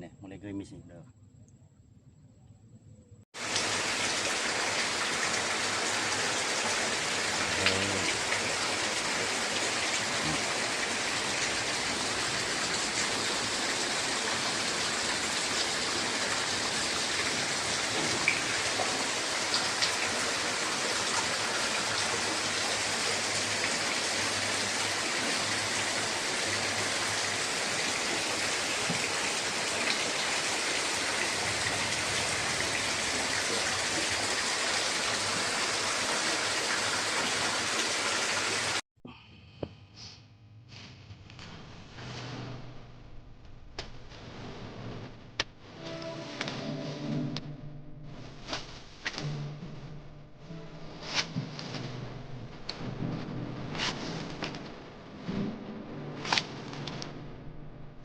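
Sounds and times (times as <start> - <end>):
steady rain falling: 3.4 - 38.8, 50.9 - 58.0
raindrop taps: 15.6 - 22.4, 27.8 - 30.0, 53.8 - 54.8.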